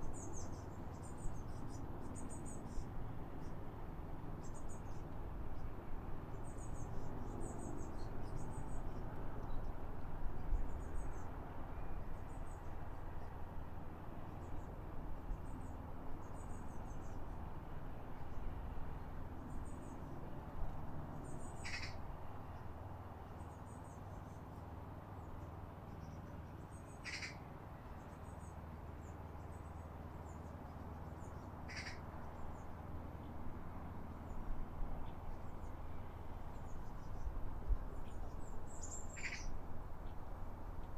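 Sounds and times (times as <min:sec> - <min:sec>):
sharp bird call notes: 0:21.6 - 0:22.0, 0:31.7 - 0:32.0.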